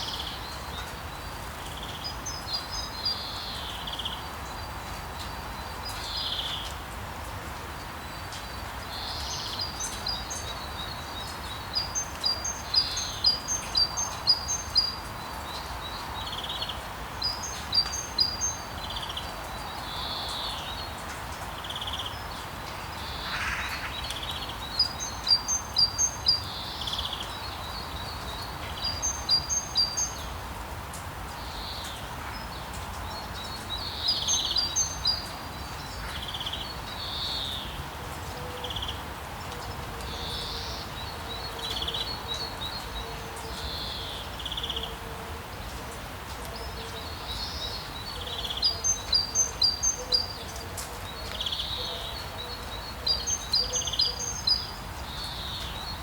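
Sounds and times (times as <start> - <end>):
rain hiss: 0.0 - 56.0
songbirds chirping: 0.0 - 56.0.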